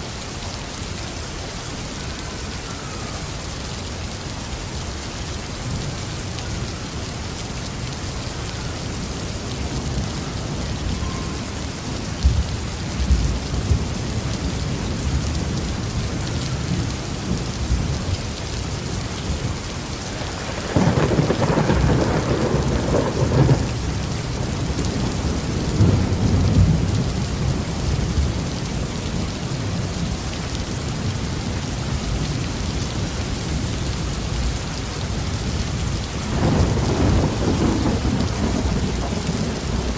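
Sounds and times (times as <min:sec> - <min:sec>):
heavy rain: 0:00.0 - 0:39.9
rolling thunder: 0:20.2 - 0:28.5, 0:36.3 - 0:39.9.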